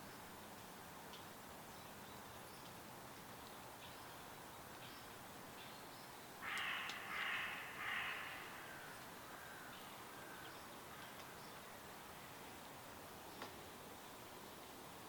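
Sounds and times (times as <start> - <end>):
faint bird chirping: 1.6 - 12.4
bird harsh loud calls: 6.4 - 10.4.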